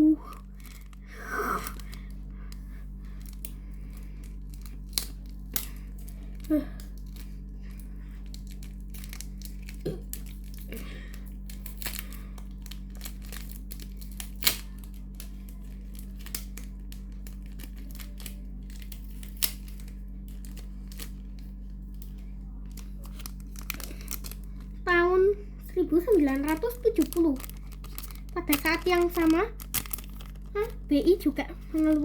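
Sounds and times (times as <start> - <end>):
steady low hum: 0.0 - 32.0
packaging tearing and crinkling: 0.5 - 2.1, 8.2 - 10.8, 11.4 - 24.7, 25.9 - 32.0
sharp clicks and rustles: 0.5 - 24.8, 26.0 - 32.0.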